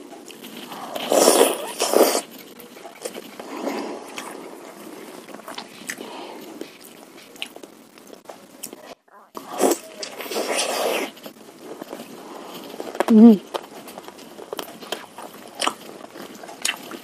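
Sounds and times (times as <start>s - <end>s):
wet chewing with clicks: 11.1s - 17.0s.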